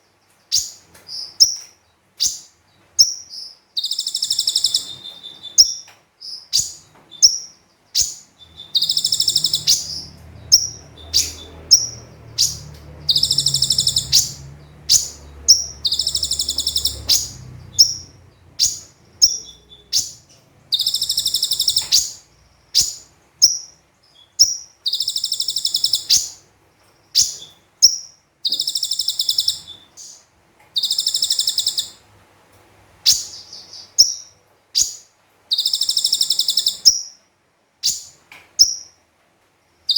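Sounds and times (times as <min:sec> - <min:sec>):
bird buzzy trills: 0:06.6 - 0:23.8, 0:27.2 - 0:30.2, 0:30.8 - 0:32.0
bird chip notes: 0:08.0 - 0:22.2.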